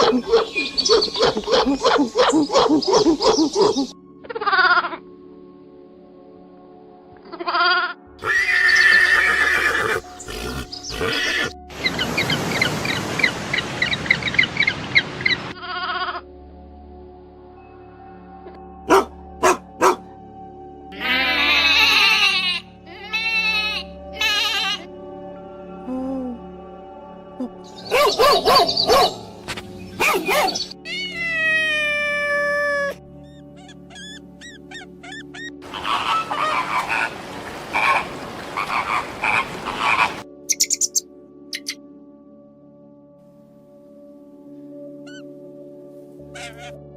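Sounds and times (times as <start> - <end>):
dog barks: 0.0 - 3.9, 18.9 - 20.0, 27.9 - 29.2, 30.0 - 30.7
rapid repeated animal calls: 0.0 - 3.9, 33.5 - 41.0
background music: 0.0 - 46.9
wavering bleats: 15.6 - 16.2, 20.9 - 24.9, 35.6 - 37.2.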